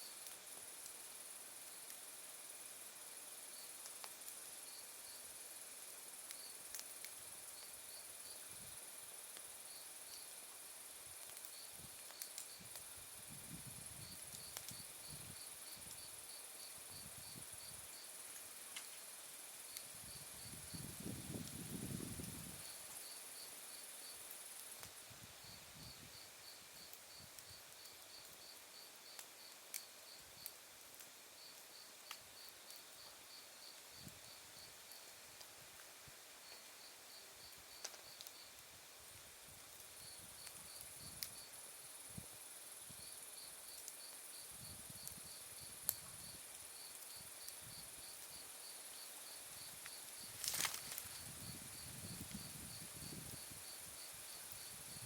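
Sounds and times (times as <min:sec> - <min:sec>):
wood fire crackling: 0:03.6 - 0:05.1, 0:05.7 - 0:16.3, 0:16.9 - 0:25.5, 0:26.2 - 0:36.9, 0:37.5 - 0:42.0, 0:45.8 - 0:55.0
crickets chirping: 0:04.5 - 0:24.8, 0:25.4 - 0:30.5, 0:31.4 - 0:35.1, 0:36.4 - 0:38.6, 0:39.4 - 0:55.0.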